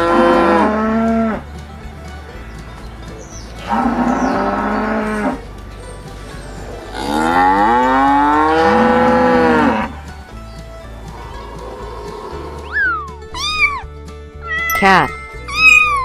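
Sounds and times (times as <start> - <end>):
cattle mooing: 0.0 - 1.4, 3.6 - 5.4, 6.8 - 10.0.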